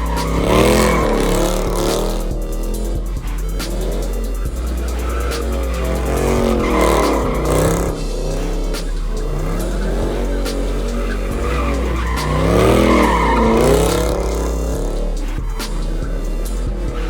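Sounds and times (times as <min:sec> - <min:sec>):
car engine revving: 0:00.0 - 0:17.0
tyres squealing and skidding: 0:00.0 - 0:17.0.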